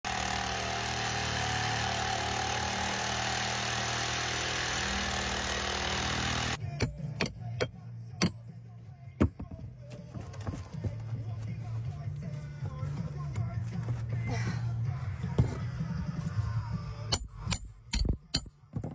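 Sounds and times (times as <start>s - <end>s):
steady machine hum: 0.0s - 6.6s.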